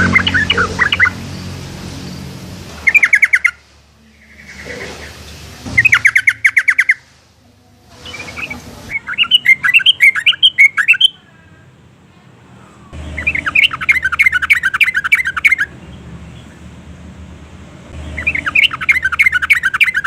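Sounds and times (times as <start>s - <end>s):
bird chattering calls: 0.0s - 1.5s, 2.8s - 3.6s, 4.2s - 7.1s, 8.1s - 11.2s, 13.0s - 15.8s, 18.0s - 20.0s.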